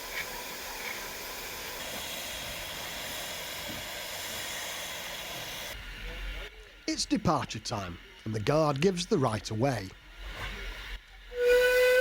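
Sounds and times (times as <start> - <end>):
steam hissing: 0.0 - 12.0.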